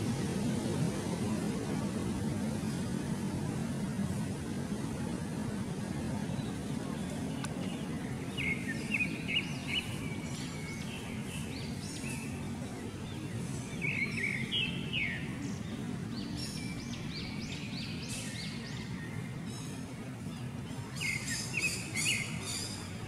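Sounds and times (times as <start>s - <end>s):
low background noise: 0.0s - 23.0s
birds chirping: 6.0s - 23.0s.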